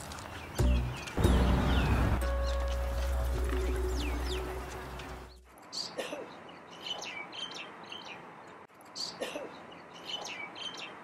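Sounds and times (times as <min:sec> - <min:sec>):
small songbirds chirping: 0:00.0 - 0:11.0
soft outdoor background: 0:00.0 - 0:11.0
background music: 0:00.6 - 0:05.5.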